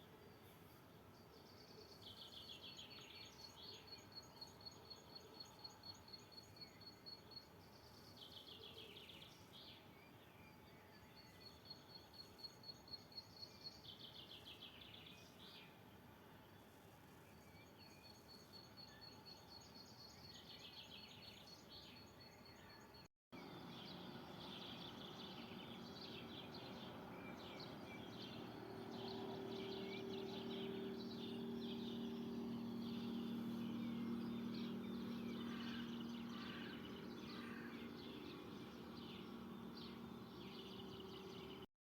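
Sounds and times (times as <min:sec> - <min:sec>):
low steady hum: 0:23.4 - 0:41.7
birds chirping and calling: 0:23.7 - 0:41.6.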